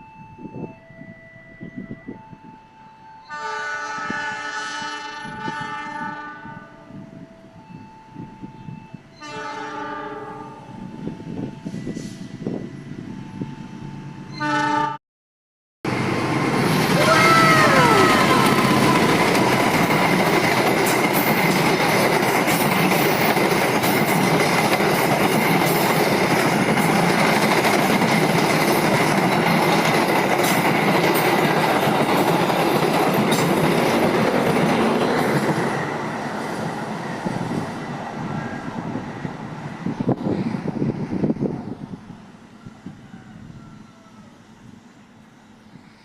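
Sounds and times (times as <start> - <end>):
train wheels rumbling on rail: 15.9 - 46.0.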